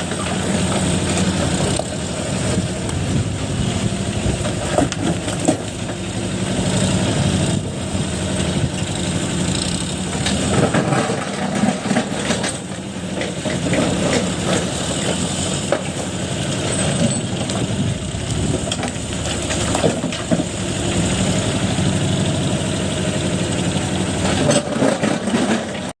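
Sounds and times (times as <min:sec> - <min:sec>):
excavator diesel engine running: 0:00.0 - 0:25.9
knocks and clatter: 0:04.3 - 0:06.0, 0:09.5 - 0:17.8, 0:18.4 - 0:20.6, 0:24.2 - 0:25.9.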